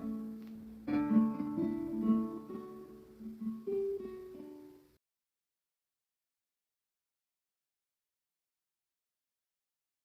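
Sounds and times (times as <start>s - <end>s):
acoustic guitar picking notes: 0.0s - 5.0s.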